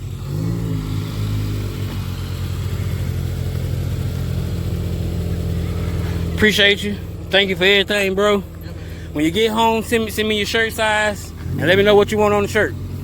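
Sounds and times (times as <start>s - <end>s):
car engine idling rumble: 0.0s - 13.0s.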